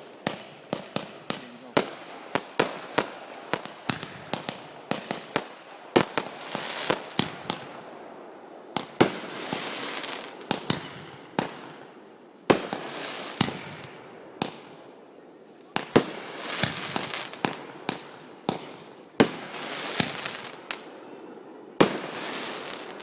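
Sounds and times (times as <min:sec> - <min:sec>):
fireworks crackling hiss: 0:00.0 - 0:21.1, 0:21.8 - 0:23.0
fireworks banging: 0:15.7 - 0:20.9.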